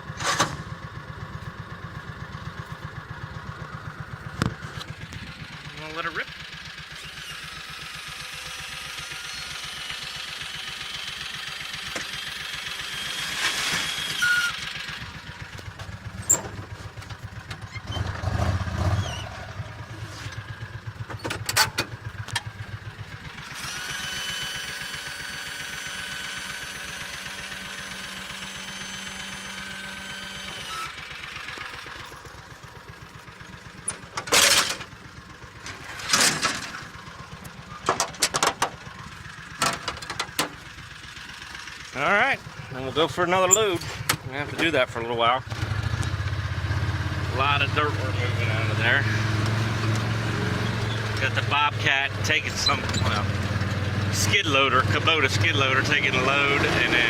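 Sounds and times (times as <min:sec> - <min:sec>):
utility vehicle engine running: 0:00.0 - 0:57.0
whine over engine: 0:00.0 - 0:57.0
dirt dumped from cargo bed: 0:13.2 - 0:14.2.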